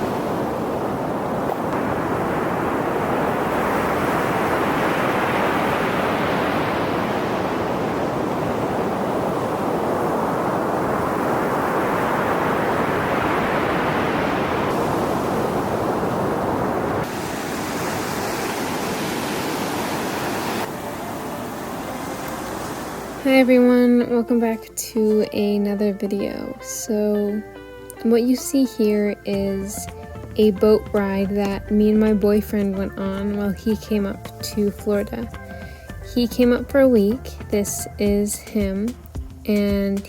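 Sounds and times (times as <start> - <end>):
wind buffeting microphone: 0.0 - 23.2
ocean surf washing in: 0.0 - 24.0.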